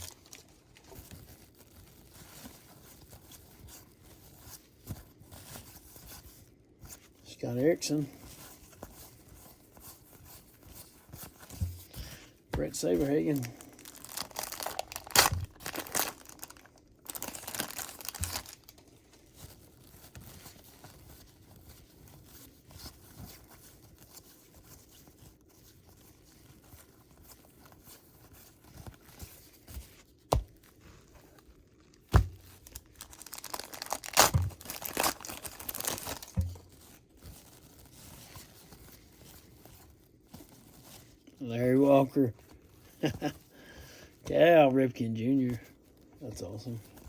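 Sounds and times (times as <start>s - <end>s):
wrapper tearing and crinkling: 0.0s - 4.4s, 12.7s - 22.3s, 30.5s - 41.3s
cards rustling: 6.8s - 24.7s, 26.0s - 47.0s.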